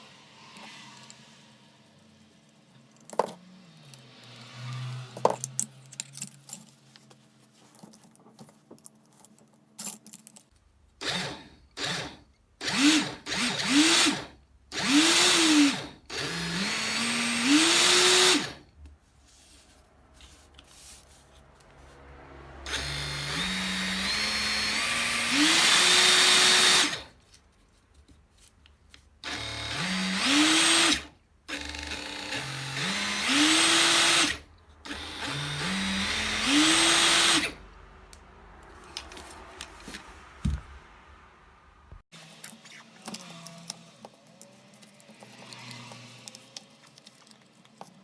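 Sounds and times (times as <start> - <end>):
cordless drill motor whirring: 11.0 - 18.6, 22.7 - 27.1, 29.2 - 37.6, 45.2 - 46.5.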